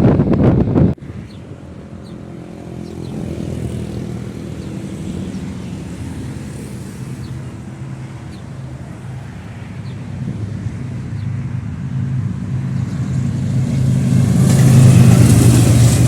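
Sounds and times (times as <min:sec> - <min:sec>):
diesel locomotive engine drone: 0:00.0 - 0:16.0
train wheels clattering over joints: 0:13.1 - 0:16.0.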